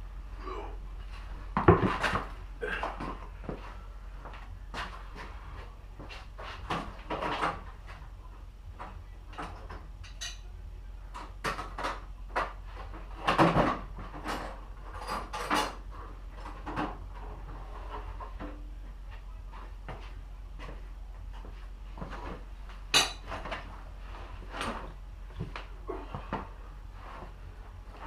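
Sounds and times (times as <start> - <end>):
steady low hum: 0.0 - 28.0
hard objects knocking and clanking: 1.6 - 2.3.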